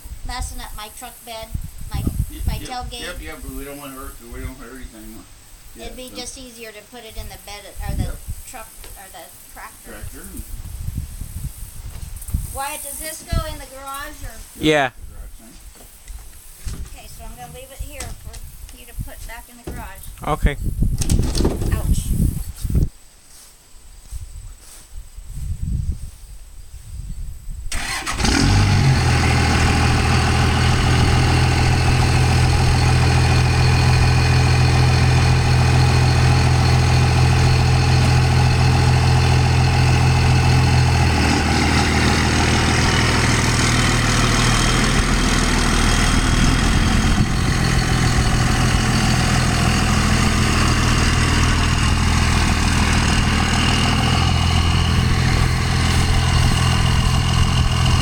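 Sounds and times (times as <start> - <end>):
engine starting and idling: 27.7 - 58.0.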